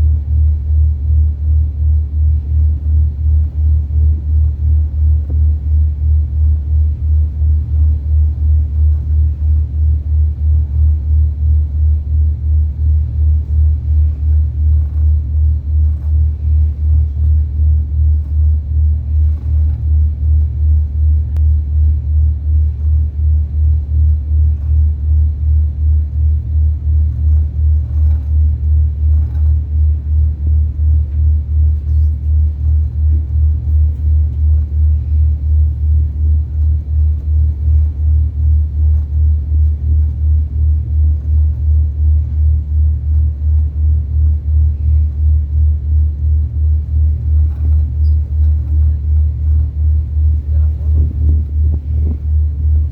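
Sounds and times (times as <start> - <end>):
ferry engine throbbing rumble: 0.0 - 52.9.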